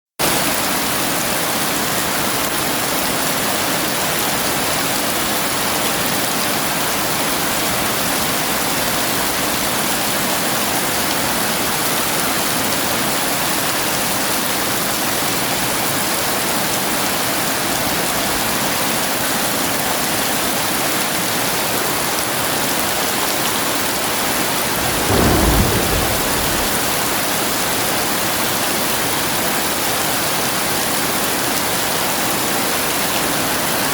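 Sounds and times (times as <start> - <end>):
heavy rain pouring: 24.2 - 28.1
deep thunder rumble: 24.4 - 28.0.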